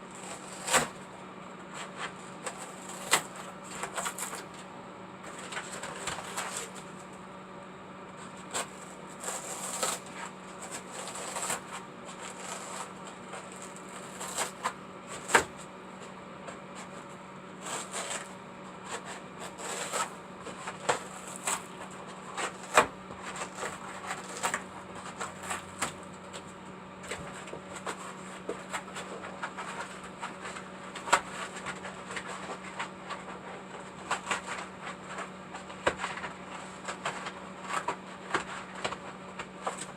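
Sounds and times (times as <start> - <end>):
steady low hum: 0.0 - 39.9
hands clicking and scraping materials: 1.7 - 4.6, 18.9 - 39.9.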